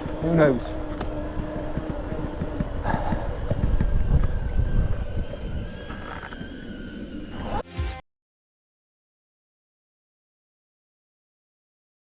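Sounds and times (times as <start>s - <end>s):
bicycle road rumble: 0.0s - 7.6s
wind buffeting microphone: 0.0s - 7.6s.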